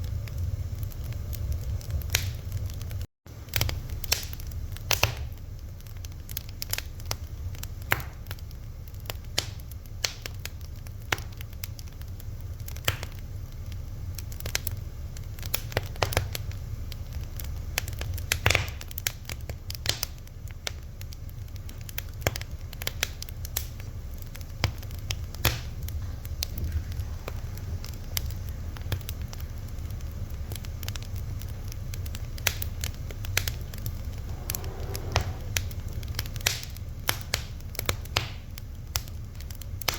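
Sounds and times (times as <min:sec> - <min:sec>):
fire crackling: 0:00.0 - 0:39.9
low rumble: 0:23.9 - 0:39.0.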